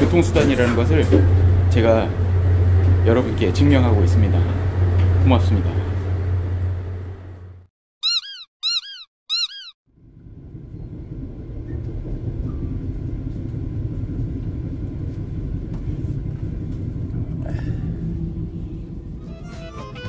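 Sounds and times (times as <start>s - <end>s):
train rumble inside carriage: 0.0s - 7.6s, 9.9s - 20.0s
cartoon sound effects: 8.0s - 9.8s.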